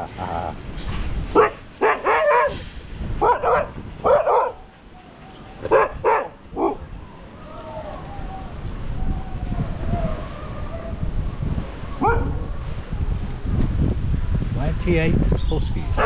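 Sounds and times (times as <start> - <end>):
dogs barking: 0.0 - 8.6, 12.0 - 12.5.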